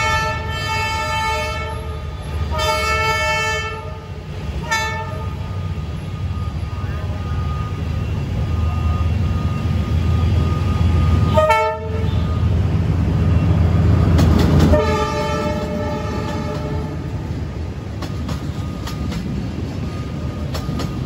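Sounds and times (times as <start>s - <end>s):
locomotive horn blast: 0.0s - 5.6s, 11.0s - 12.5s, 14.5s - 17.2s
diesel locomotive rumbling: 0.0s - 21.0s.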